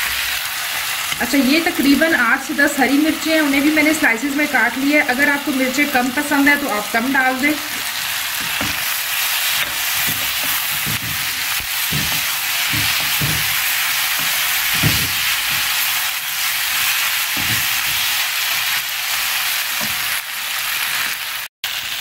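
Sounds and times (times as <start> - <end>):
vegetables sizzling in hot oil: 0.0 - 22.0
wooden spoon scraping and knocking pan: 5.8 - 18.2.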